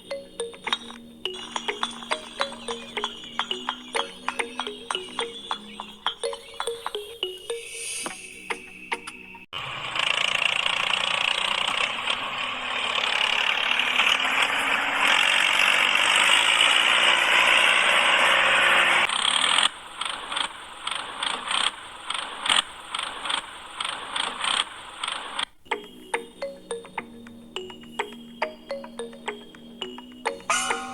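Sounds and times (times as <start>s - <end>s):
small motor and gears whirring: 9.6s - 25.5s.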